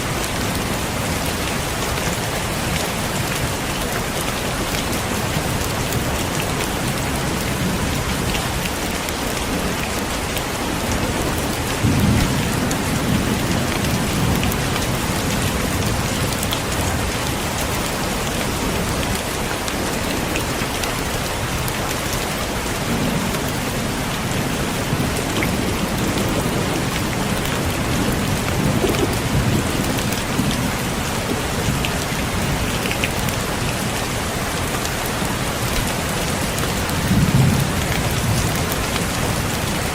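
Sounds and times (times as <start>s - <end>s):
heavy rain pouring: 0.0s - 39.9s
thunder rumbling: 22.8s - 32.7s.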